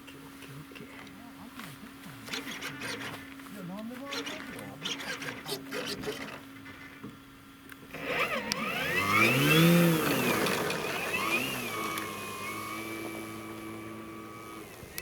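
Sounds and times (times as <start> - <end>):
electric motor whining: 4.1 - 6.6, 7.9 - 15.0.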